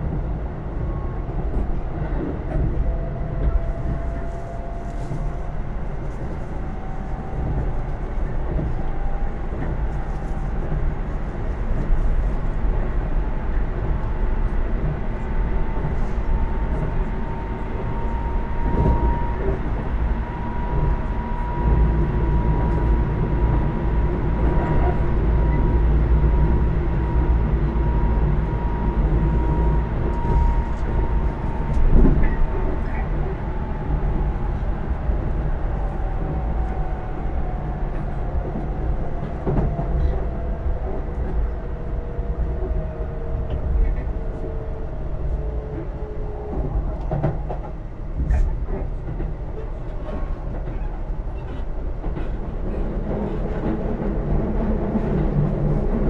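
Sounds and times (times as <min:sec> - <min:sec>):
wheels rumbling on rail: 0:00.0 - 0:56.0.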